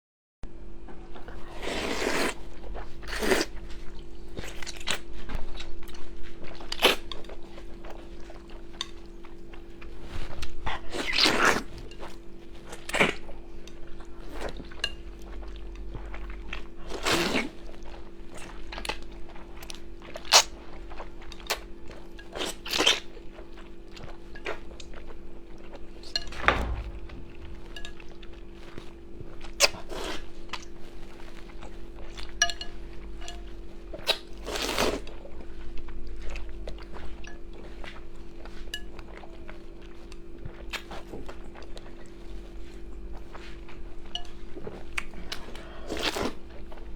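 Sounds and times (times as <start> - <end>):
chewing: 1.2 - 46.9
steady low hum: 17.6 - 46.9.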